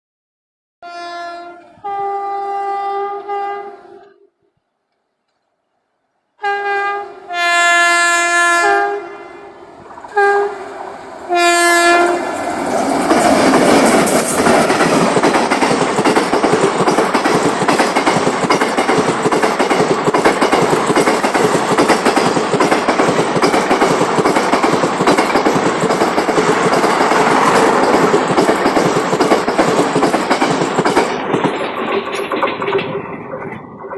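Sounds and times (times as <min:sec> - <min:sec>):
electric locomotive horn blasts: 0:00.8 - 0:04.3, 0:06.4 - 0:10.7, 0:11.3 - 0:12.3
train wheels clattering over rail joints: 0:12.3 - 0:33.9.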